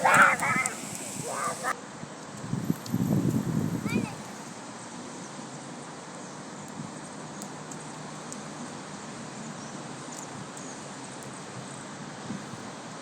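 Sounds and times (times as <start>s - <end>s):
steady rain hissing: 0.0s - 1.8s.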